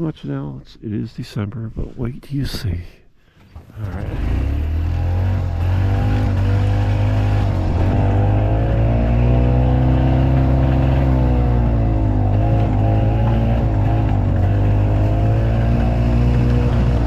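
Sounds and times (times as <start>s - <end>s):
golf cart engine running: 3.6s - 17.0s.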